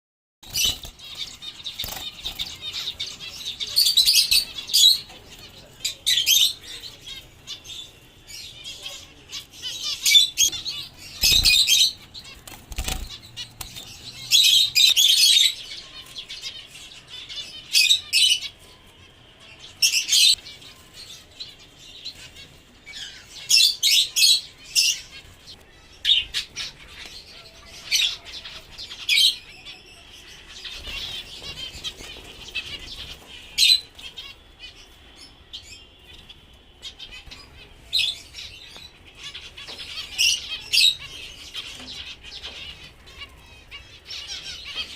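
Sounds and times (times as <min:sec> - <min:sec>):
finches chirping: 0:09.6 - 0:18.8.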